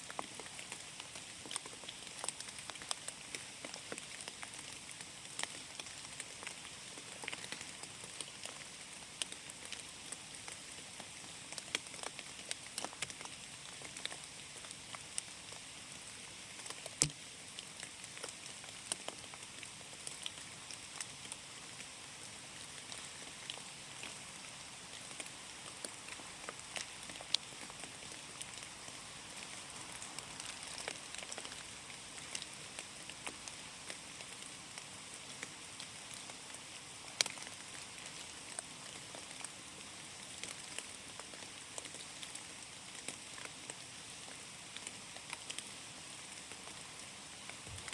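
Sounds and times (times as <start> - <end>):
rain falling through forest: 0.0 - 47.9
raindrops ticking close by: 0.0 - 47.9.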